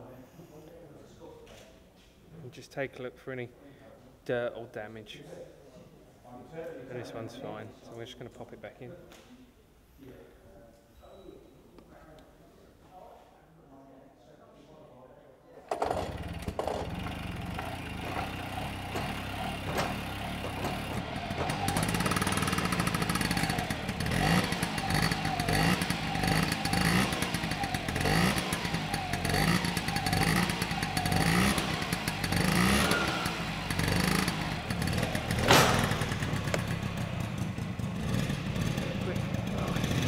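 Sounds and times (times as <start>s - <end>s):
engine throttle blips: 15.7s - 40.0s
two-stroke engine running: 15.7s - 40.0s.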